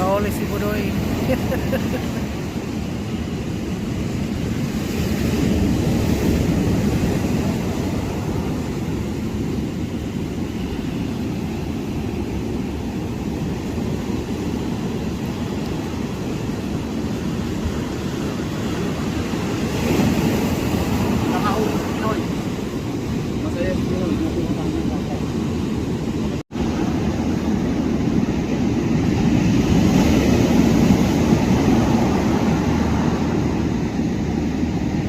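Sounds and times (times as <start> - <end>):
ocean surf: 0.0 - 35.0
wind buffeting microphone: 0.0 - 35.0.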